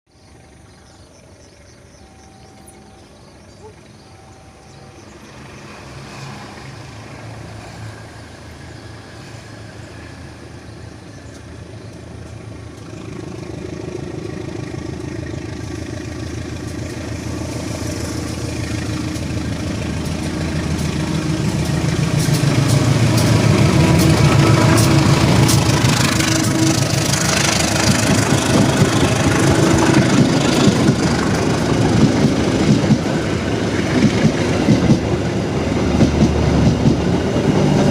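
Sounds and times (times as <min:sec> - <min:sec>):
train engine pulsing: 0:00.3 - 0:37.9.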